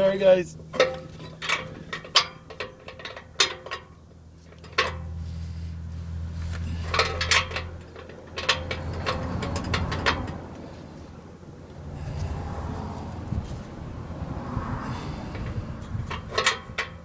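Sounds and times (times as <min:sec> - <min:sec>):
low steady hum: 0:00.0 - 0:12.2
hand tools clinking on metal: 0:00.7 - 0:05.1, 0:06.6 - 0:10.4.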